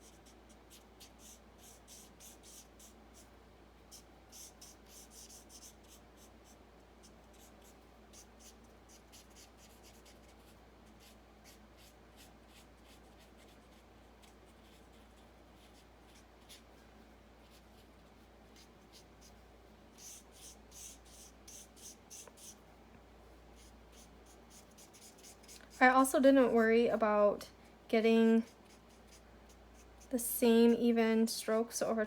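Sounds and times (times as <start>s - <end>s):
marker scratching on card: 0.0s - 3.3s, 3.9s - 16.7s, 17.4s - 22.6s, 23.6s - 25.8s, 28.4s - 30.0s.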